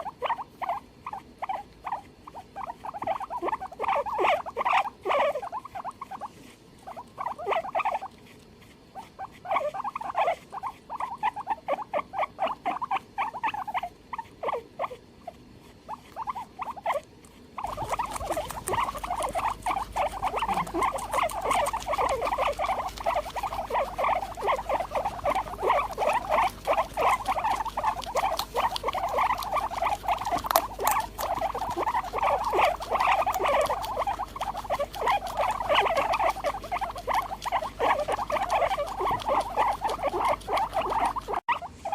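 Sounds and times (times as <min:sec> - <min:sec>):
guinea pig squeaking: 0:00.0 - 0:41.9
steady low hum: 0:00.0 - 0:41.9.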